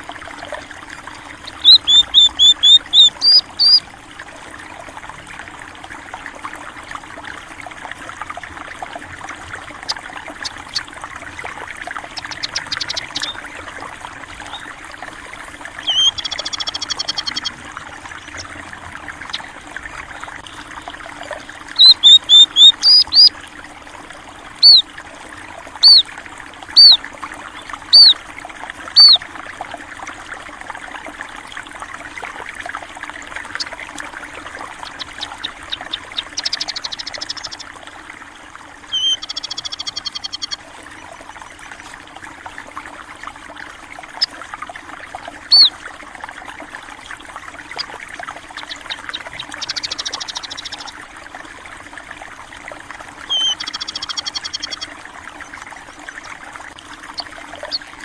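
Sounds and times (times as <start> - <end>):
water trickling: 0.0 - 58.0
songbirds calling: 0.9 - 3.9, 9.3 - 23.4, 24.6 - 24.9, 25.8 - 26.1, 26.7 - 28.2, 28.9 - 29.2, 33.4 - 37.8, 38.8 - 40.6, 45.4 - 45.8, 47.6 - 51.0, 53.2 - 54.9, 57.1 - 57.9.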